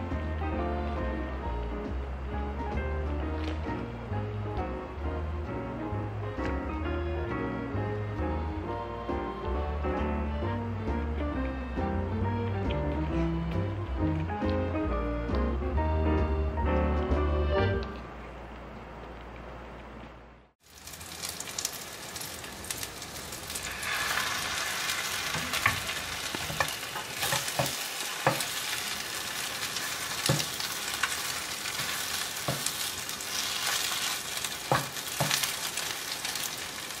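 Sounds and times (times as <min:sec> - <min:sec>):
bread sizzling in a pan: 0:20.6 - 0:37.0
wooden spatula scraping a pan: 0:23.6 - 0:35.6.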